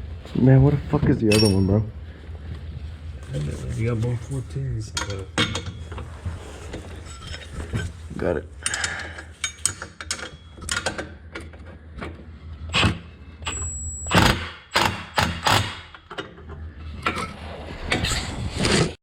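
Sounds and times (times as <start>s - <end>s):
wrenches and ratchet clinking: 6.8s - 11.6s.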